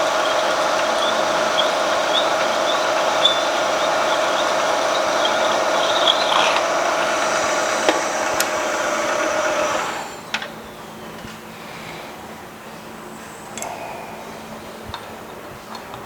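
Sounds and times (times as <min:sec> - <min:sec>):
machine stopping click: 0:00.0 - 0:10.5
milling machine whining: 0:00.0 - 0:10.7.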